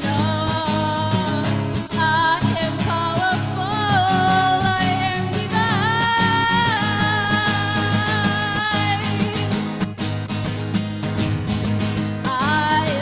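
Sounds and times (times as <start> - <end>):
person singing with vibrato: 0.0 - 9.8, 12.2 - 13.0
strummed acoustic guitar: 0.0 - 13.0.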